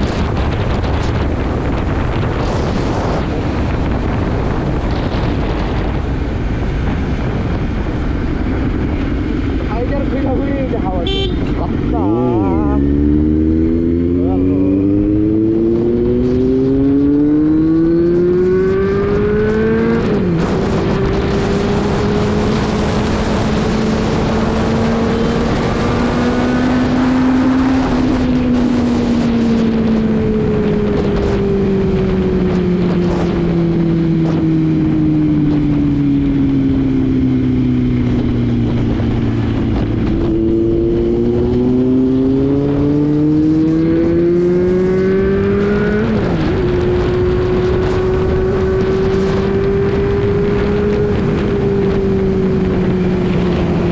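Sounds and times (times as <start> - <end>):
motorcycle engine revving: 0.0 - 53.9
wind rushing: 0.0 - 53.9.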